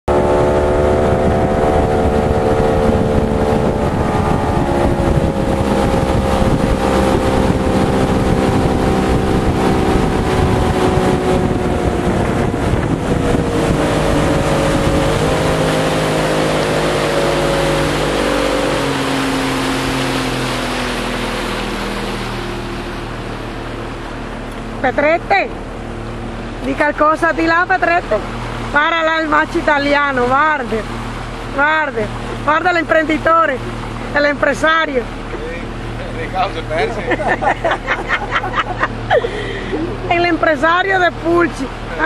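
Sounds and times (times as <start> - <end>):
boat engine running: 0.0 - 42.0
water rushing: 0.0 - 42.0
wind on microphone: 0.1 - 24.8.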